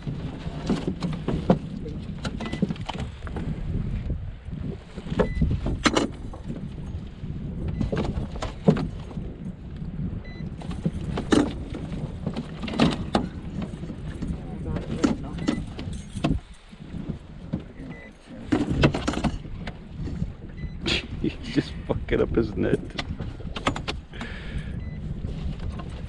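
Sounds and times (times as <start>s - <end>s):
wind rumble on microphone: 0.0s - 26.0s
handling clicks and knocks: 5.1s - 6.6s, 10.6s - 19.8s, 22.8s - 24.3s.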